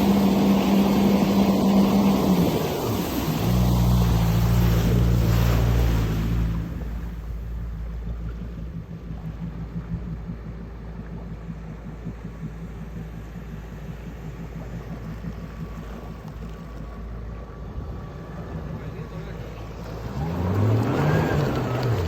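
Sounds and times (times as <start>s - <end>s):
jet ski engine running: 0.0s - 22.0s
water and wind hiss: 0.0s - 22.0s.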